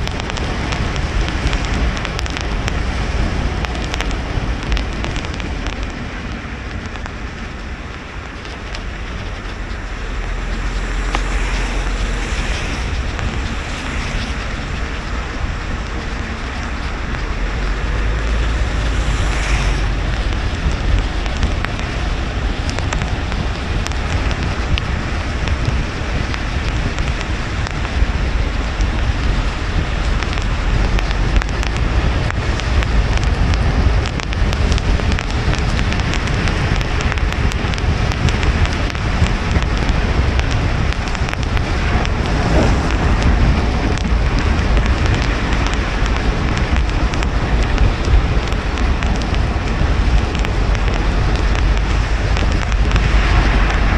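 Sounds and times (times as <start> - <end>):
raindrops pattering on car: 0.0 - 53.9
tyre and road noise: 0.0 - 53.9.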